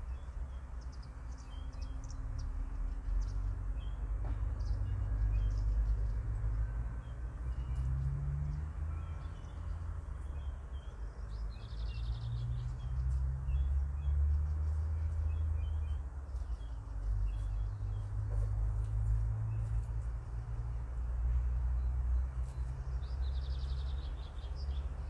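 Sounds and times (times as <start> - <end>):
small birds chirping: 0.0 - 4.0, 9.0 - 18.5, 21.8 - 25.0.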